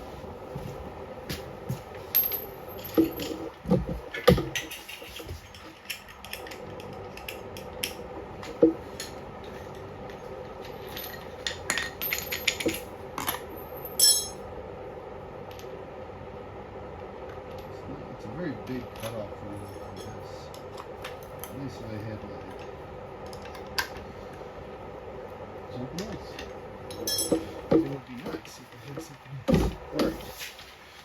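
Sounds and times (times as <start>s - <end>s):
steady background hum: 0.0s - 31.0s
metal tools clinking: 2.1s - 3.4s, 10.6s - 14.4s, 26.9s - 27.6s.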